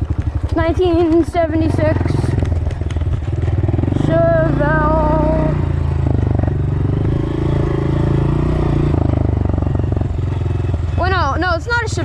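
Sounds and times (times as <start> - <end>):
engine idling: 0.0 - 7.0.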